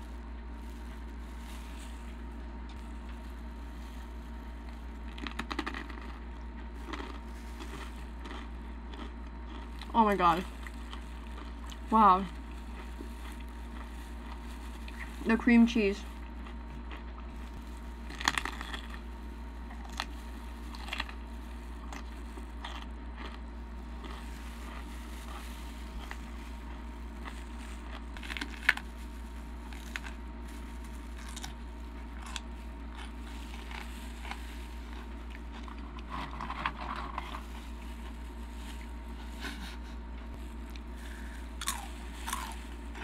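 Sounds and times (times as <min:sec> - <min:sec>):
crunching and chewing: 0:00.0 - 0:43.0
steady low hum: 0:00.0 - 0:43.0.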